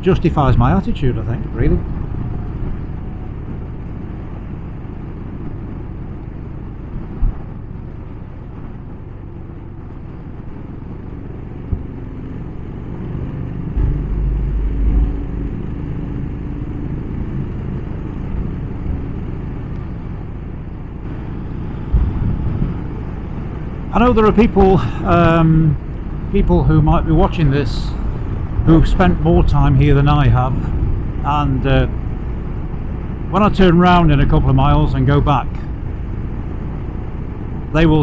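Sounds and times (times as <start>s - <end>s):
motorcycle engine rumble: 0.0s - 38.0s
short low knocks: 7.1s - 7.6s, 13.5s - 16.6s, 21.8s - 22.9s.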